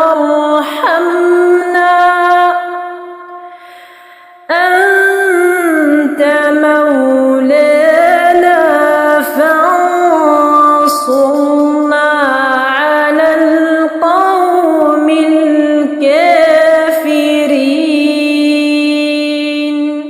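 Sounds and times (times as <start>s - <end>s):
woman chanting melodically: 0.0s - 3.5s, 4.5s - 20.0s.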